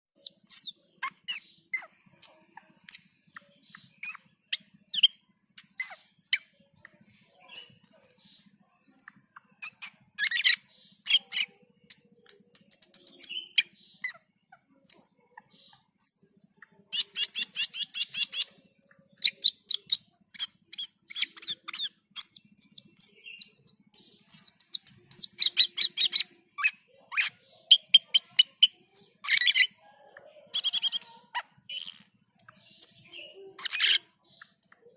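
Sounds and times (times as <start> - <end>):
bird singing chirps and whistles: 0.1 - 14.2, 16.0 - 34.8
bird rattling chatters: 16.1 - 34.9.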